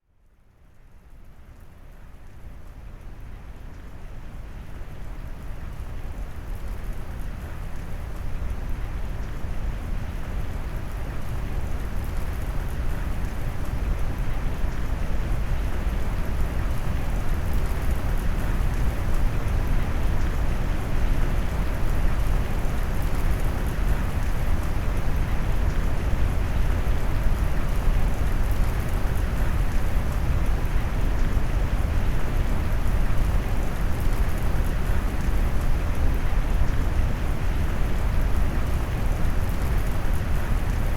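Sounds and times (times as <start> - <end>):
rain: 0.0 - 40.9.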